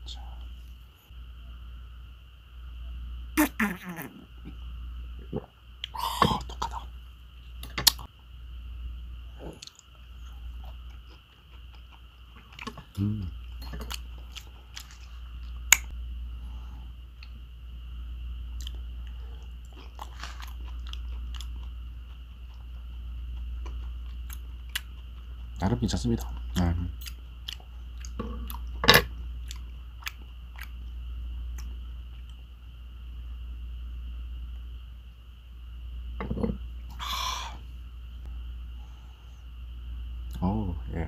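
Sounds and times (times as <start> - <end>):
man chewing wet smacking: 10.6 - 15.9, 18.6 - 25.6, 26.2 - 28.8, 29.4 - 32.4.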